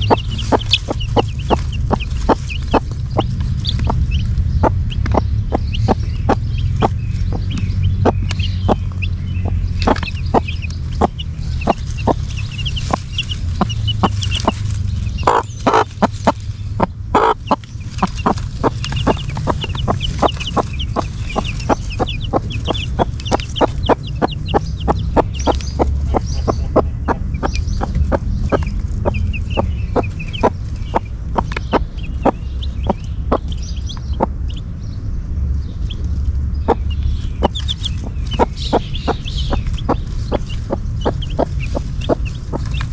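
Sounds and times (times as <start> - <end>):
hen clucking: 0.0 - 34.6, 35.7 - 42.9
chicks peeping: 0.0 - 42.9.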